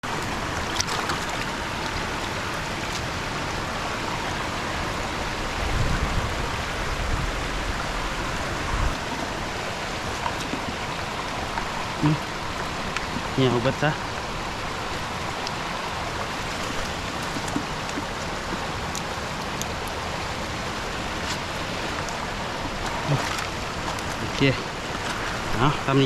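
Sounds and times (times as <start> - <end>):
water rushing: 0.0 - 26.0
low rumble: 3.7 - 13.5.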